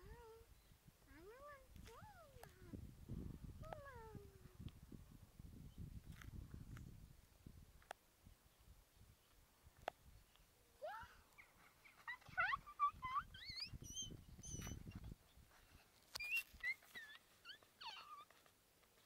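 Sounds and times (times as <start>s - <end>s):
small birds chirping: 10.0s - 18.4s.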